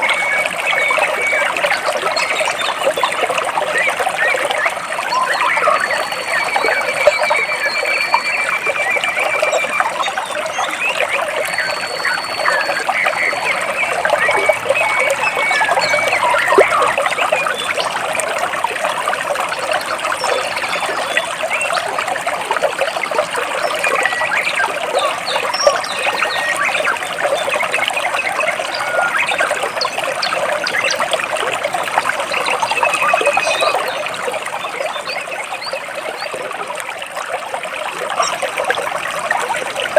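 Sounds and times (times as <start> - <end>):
stream water splashing over rocks: 0.0 - 39.9.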